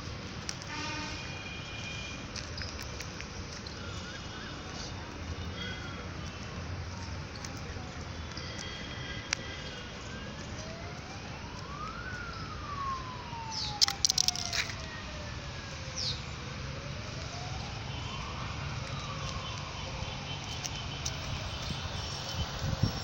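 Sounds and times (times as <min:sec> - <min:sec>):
siren wailing: 0:03.6 - 0:07.5, 0:08.3 - 0:23.0
cluster of sharp clicks: 0:13.5 - 0:14.9.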